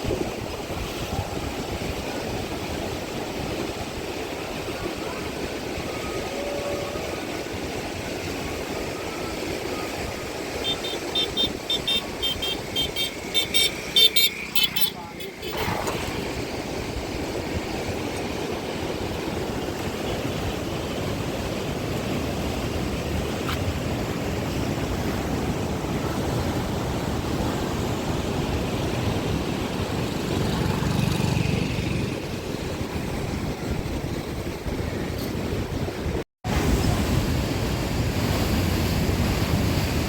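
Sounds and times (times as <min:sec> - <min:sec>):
wind buffeting microphone: 0:00.0 - 0:10.7
river rushing: 0:00.0 - 0:32.8.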